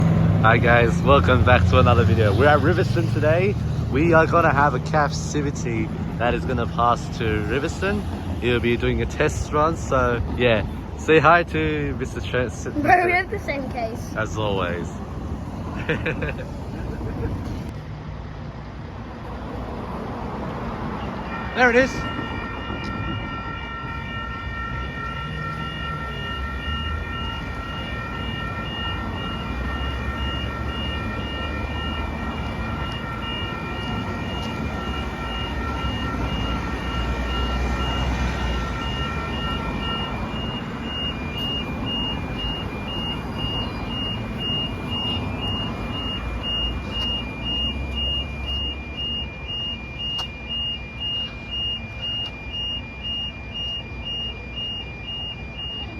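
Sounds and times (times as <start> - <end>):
train rumbling: 0.0 - 18.0, 19.2 - 48.5
level crossing alarm tones: 0.4 - 16.7, 20.6 - 55.9
rapid pulsing beep: 38.8 - 55.9.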